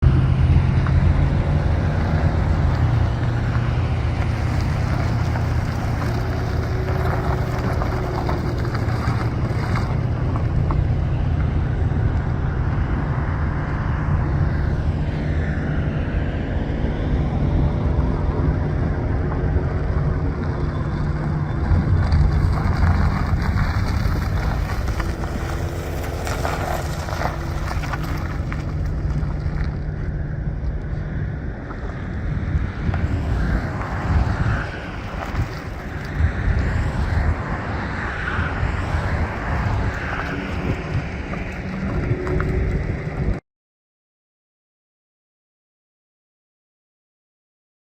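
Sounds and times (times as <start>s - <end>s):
wind buffeting microphone: 0.0s - 43.4s
pickup engine running: 17.7s - 34.2s.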